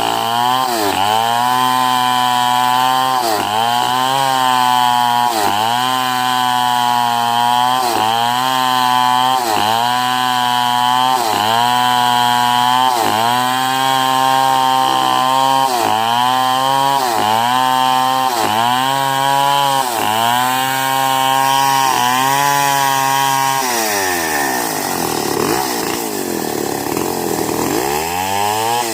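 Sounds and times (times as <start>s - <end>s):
chainsaw cutting log: 0.0s - 28.9s.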